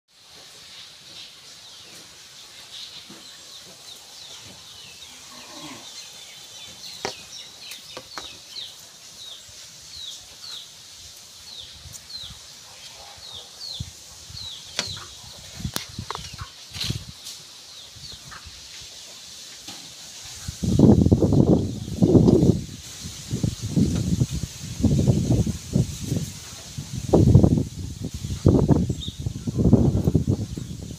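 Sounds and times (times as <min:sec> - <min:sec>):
chick chirping: 0:12.1 - 0:17.0.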